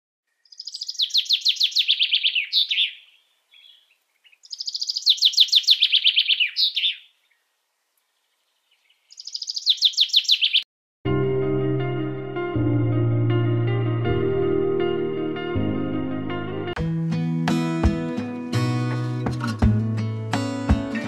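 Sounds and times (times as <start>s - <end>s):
small bird trilling: 0.4s - 7.1s, 9.1s - 10.7s.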